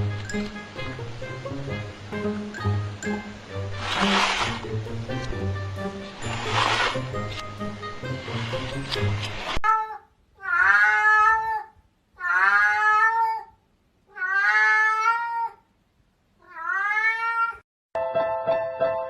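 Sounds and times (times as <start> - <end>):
cat meowing: 9.6 - 15.7, 16.4 - 17.6.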